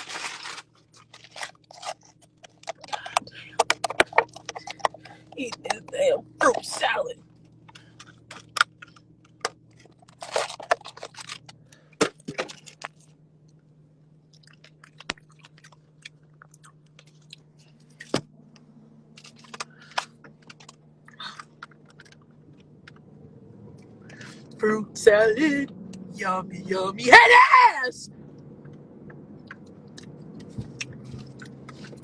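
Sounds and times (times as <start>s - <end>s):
short crunches and clicks: 0.0s - 13.7s, 14.3s - 23.1s, 28.3s - 32.0s
low steady hum: 0.0s - 32.0s
person chewing food: 0.6s - 5.4s, 7.6s - 13.1s, 14.2s - 18.6s, 19.2s - 23.0s, 29.0s - 32.0s.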